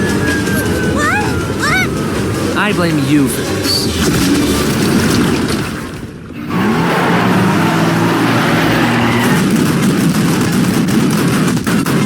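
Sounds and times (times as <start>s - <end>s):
cartoon truck engine revving: 6.4s - 9.7s.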